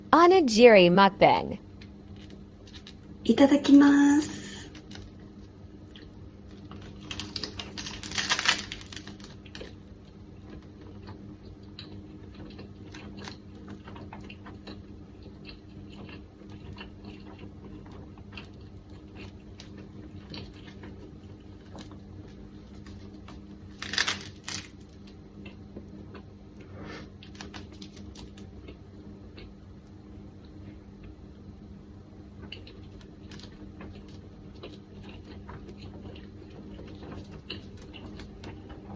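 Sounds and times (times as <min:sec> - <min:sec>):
chewing with crunches: 0:04.7 - 0:31.2, 0:32.4 - 0:38.9
crunchy bite: 0:05.9 - 0:09.8, 0:22.7 - 0:25.2.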